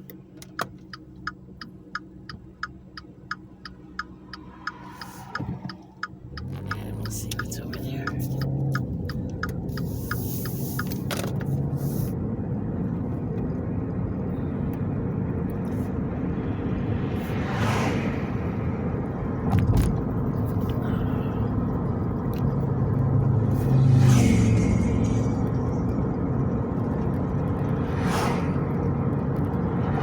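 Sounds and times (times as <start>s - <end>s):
car road and engine rumble: 0.0s - 30.0s
even ticks: 0.6s - 11.1s
whoosh: 15.8s - 19.0s, 23.2s - 26.6s.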